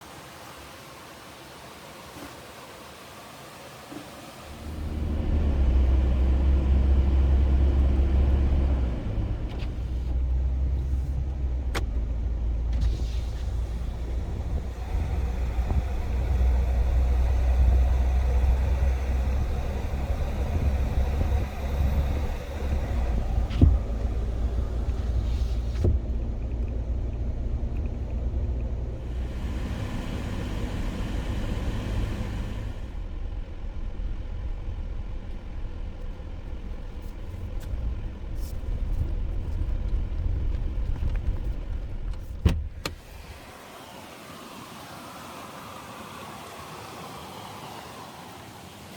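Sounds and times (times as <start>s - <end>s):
pickup truck driving rumble: 4.6s - 42.8s.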